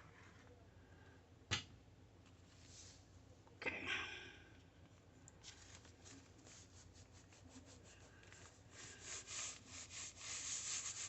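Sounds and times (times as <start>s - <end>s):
rubbing strokes on paper: 5.6s - 11.0s.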